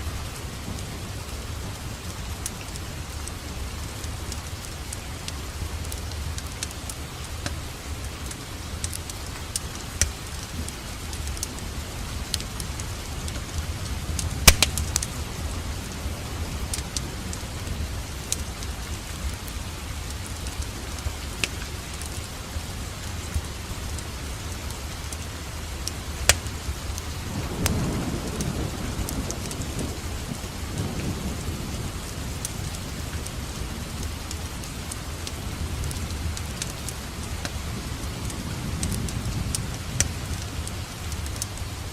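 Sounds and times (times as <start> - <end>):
steady rain: 0.0 - 41.9
fireplace crackling and popping: 0.7 - 27.8, 32.0 - 41.9
distant thunder: 26.4 - 35.0.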